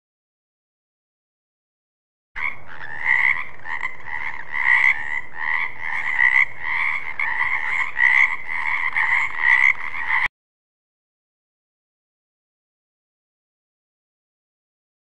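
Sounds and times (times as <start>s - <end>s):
frog croaking: 2.4s - 10.3s.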